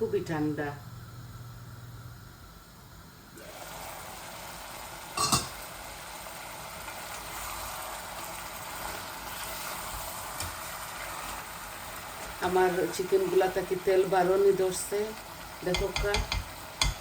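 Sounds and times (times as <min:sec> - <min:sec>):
curry sizzling in oil: 0:03.3 - 0:17.0
utensil knocking against pot: 0:15.7 - 0:17.0.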